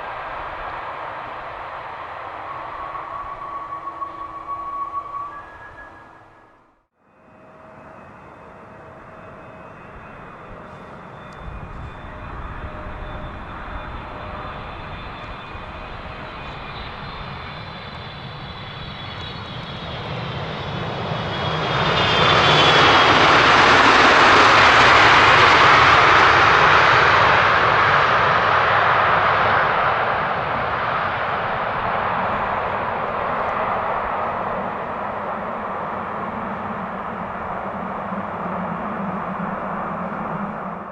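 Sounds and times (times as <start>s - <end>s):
jet airliner engines roaring: 0.0s - 40.9s.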